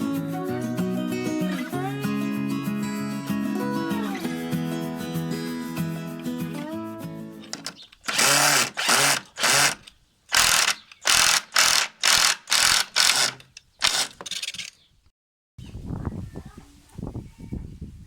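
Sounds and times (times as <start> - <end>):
guitar music: 0.0 - 7.5.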